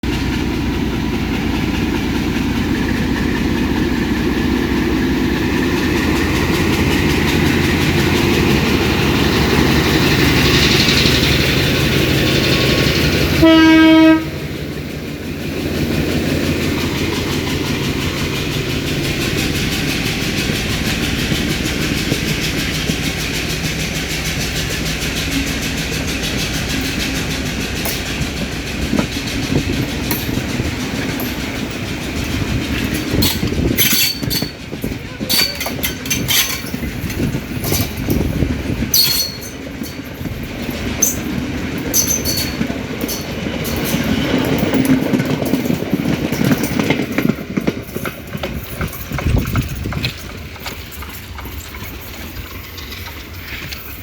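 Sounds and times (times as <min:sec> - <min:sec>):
diesel locomotive engine drone: 0:00.0 - 0:54.0
train wheels clickety-clack: 0:00.0 - 0:54.0
train horn blast: 0:13.4 - 0:14.5.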